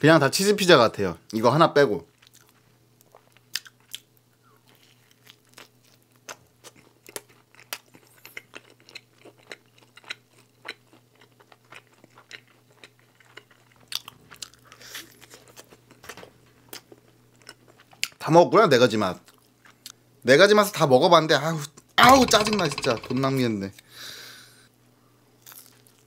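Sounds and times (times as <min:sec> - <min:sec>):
person chewing pizza: 0:02.1 - 0:18.2, 0:19.2 - 0:20.0, 0:25.4 - 0:26.0.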